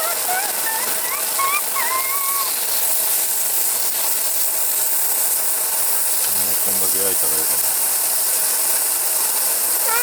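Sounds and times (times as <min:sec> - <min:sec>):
squeaky gliding chirps: 0:00.0 - 0:02.6
food sizzling in a pan: 0:00.0 - 0:10.0.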